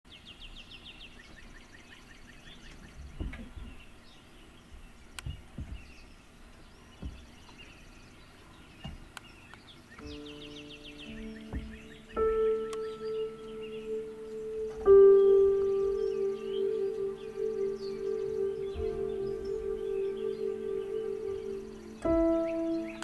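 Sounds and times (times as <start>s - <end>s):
songbirds singing and chirping: 0.1s - 23.0s
soft low thumps: 4.7s - 7.8s, 10.0s - 23.0s
held musical tones: 10.0s - 23.0s.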